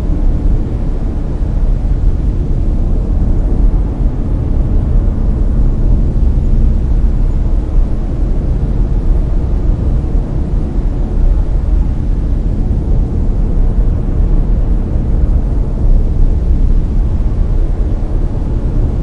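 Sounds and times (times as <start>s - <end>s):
brown noise: 0.0s - 19.0s.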